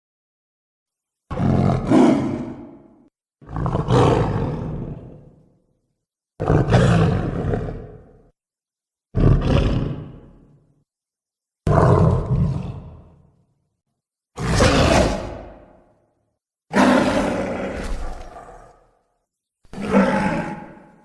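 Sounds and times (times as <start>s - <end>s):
monster roars: 1.3s - 5.2s, 14.4s - 15.9s, 16.7s - 19.0s, 19.7s - 21.0s.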